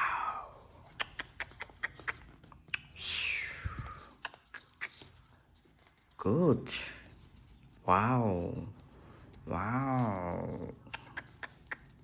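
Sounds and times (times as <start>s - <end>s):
paper crinkling and folding: 3.8s - 12.0s
paper rustling: 3.8s - 12.0s.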